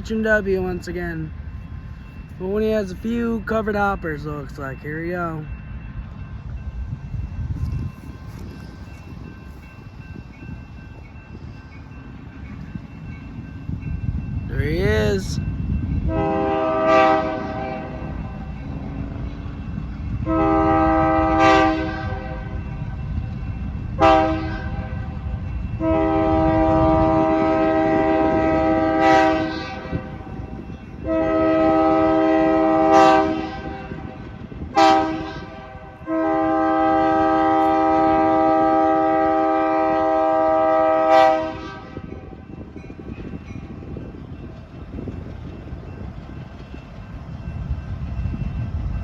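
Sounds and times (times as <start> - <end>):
train rumbling past: 0.0 - 49.0
locomotive chime horn: 16.0 - 19.1, 19.7 - 23.3, 23.9 - 42.6.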